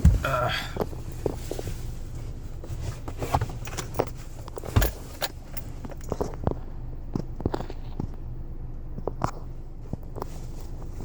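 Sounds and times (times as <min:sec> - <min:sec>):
steady low hum: 0:00.0 - 0:11.0
handling clicks and knocks: 0:02.8 - 0:06.6
car keys jangling: 0:03.0 - 0:06.4.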